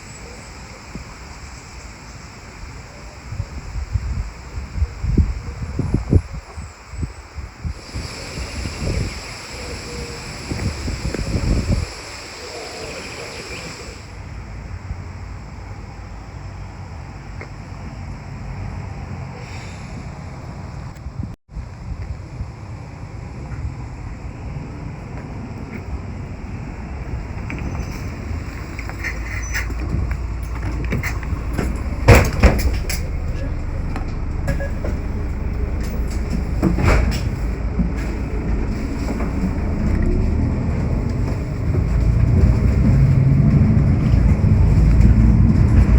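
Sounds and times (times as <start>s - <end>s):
low rumble of wind: 0.0s - 45.9s
wind buffeting microphone: 1.9s - 15.7s, 20.0s - 45.9s
rattling clatter: 27.3s - 45.9s.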